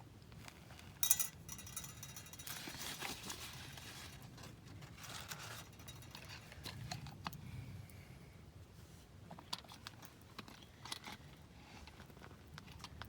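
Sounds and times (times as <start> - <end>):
coffee beans rattling in mesh roaster: 1.0 - 6.7.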